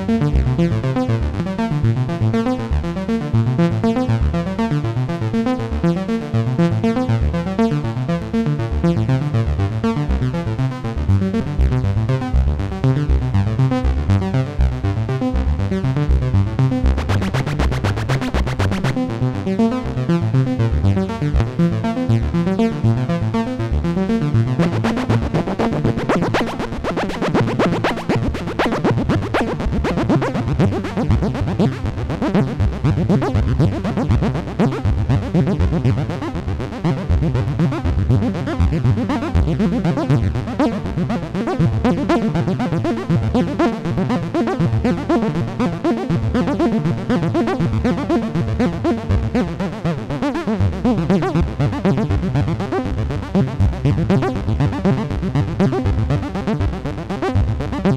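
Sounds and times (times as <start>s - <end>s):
synth bass line: 0.0s - 57.9s
synthesizer playing rhythmic notes: 11.5s - 20.3s, 24.2s - 57.9s.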